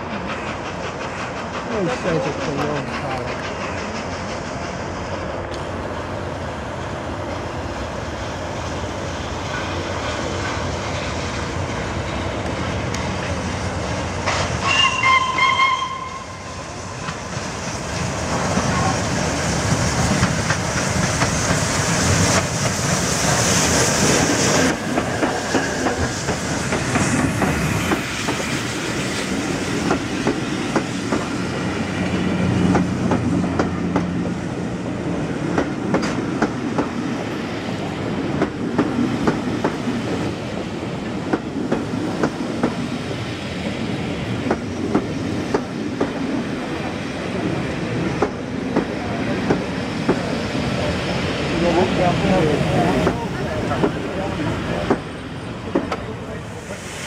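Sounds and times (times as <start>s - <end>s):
train wheels clickety-clack: 0.0s - 5.7s, 8.7s - 34.6s, 35.2s - 57.0s
steam hiss: 16.2s - 34.7s, 35.3s - 57.0s.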